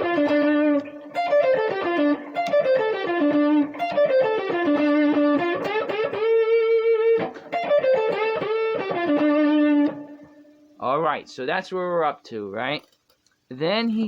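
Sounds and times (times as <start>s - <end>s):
electric guitar playing blues lick: 0.0s - 10.7s.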